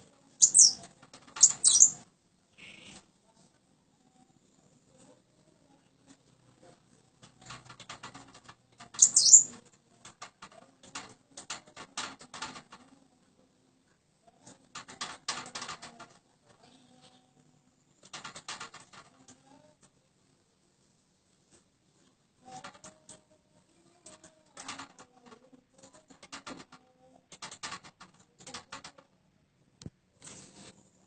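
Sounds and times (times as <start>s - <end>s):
bird call: 9.0s - 9.5s.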